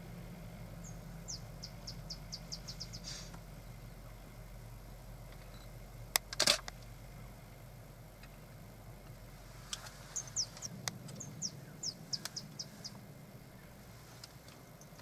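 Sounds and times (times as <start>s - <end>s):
small bird chirping: 0.8s - 3.3s, 10.1s - 13.0s.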